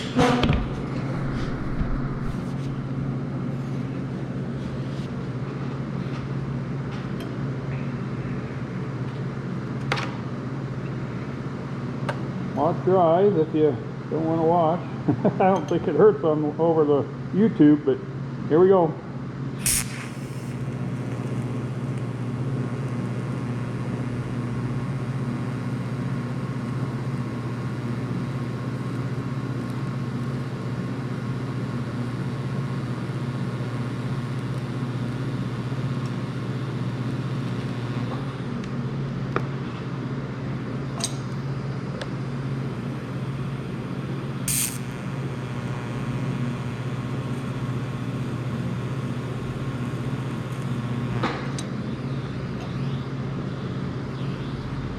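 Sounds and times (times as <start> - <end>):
sharp crackles: 0.0 - 2.8, 19.6 - 25.5, 44.5 - 51.2
welding arc hiss: 0.0 - 3.9, 19.6 - 30.8, 31.4 - 38.7, 42.7 - 52.6
welder machine hum: 0.0 - 15.7, 16.3 - 54.9.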